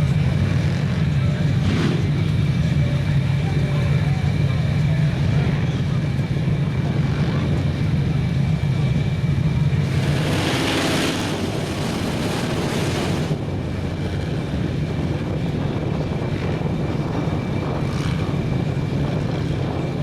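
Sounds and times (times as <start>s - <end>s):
loud rushing hiss: 9.8s - 13.4s
truck engine droning: 9.8s - 13.5s.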